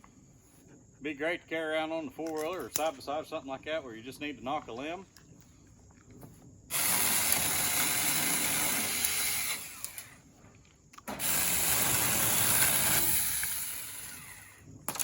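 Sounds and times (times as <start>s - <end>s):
mini chainsaw cutting wood: 6.7s - 10.2s, 11.1s - 15.0s.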